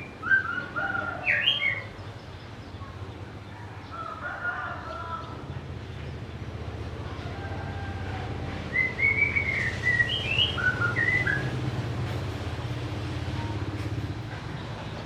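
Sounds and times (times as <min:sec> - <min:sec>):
bird singing whistled notes: 0:00.0 - 0:01.9, 0:08.7 - 0:11.6.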